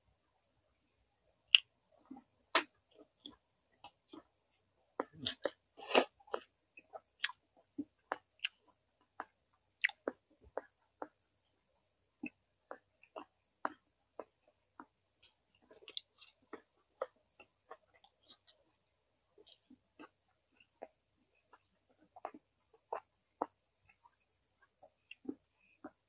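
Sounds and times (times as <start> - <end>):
person chewing with wet clicks: 5.0 - 11.2, 12.2 - 18.8, 19.4 - 26.0.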